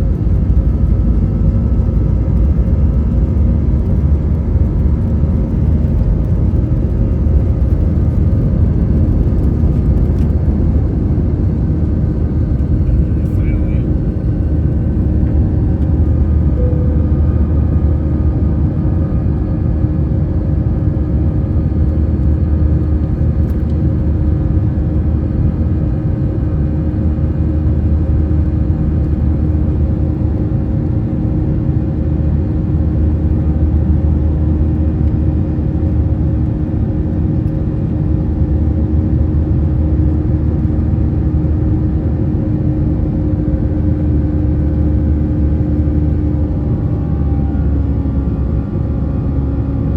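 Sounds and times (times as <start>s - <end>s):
airplane cabin engine rumble: 0.0s - 49.9s.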